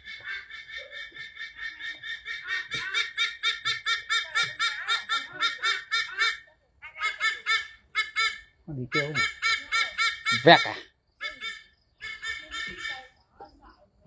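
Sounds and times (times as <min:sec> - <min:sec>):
bird calling high-pitched notes: 0:09.0 - 0:10.8.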